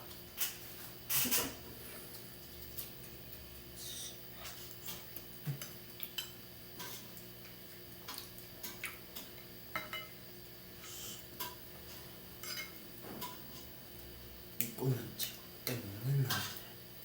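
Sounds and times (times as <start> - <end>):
cutlery clinking against dishes: 9.7 - 10.2, 12.4 - 13.4.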